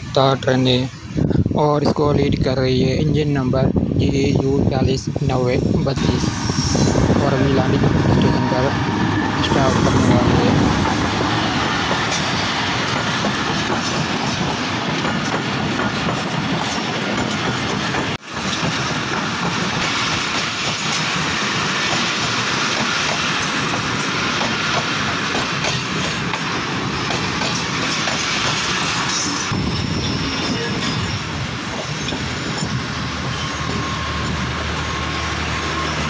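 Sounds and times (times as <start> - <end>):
high wheel squeal: 6.0 - 12.4, 18.2 - 22.8, 27.6 - 36.0
train wheels clattering over rail joints: 8.8 - 29.4.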